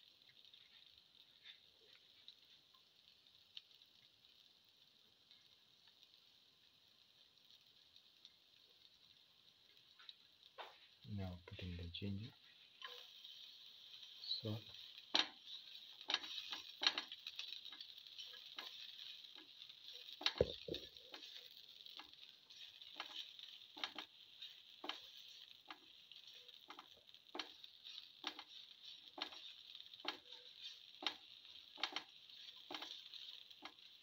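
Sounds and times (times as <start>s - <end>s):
shallots sizzling in oil: 0.0s - 34.0s
spatula scraping and tapping pan: 12.3s - 34.0s.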